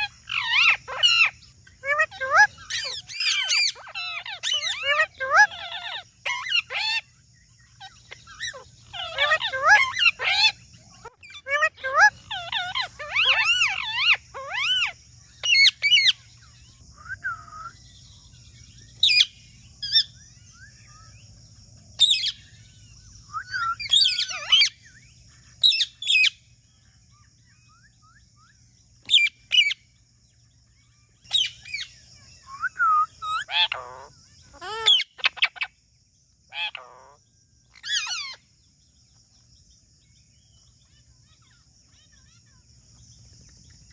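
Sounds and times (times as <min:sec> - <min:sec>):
parrot chirps and squawks: 0:00.0 - 0:17.8, 0:19.0 - 0:20.1, 0:22.0 - 0:22.5, 0:23.4 - 0:26.4, 0:29.0 - 0:29.8, 0:31.2 - 0:35.8, 0:36.5 - 0:38.4.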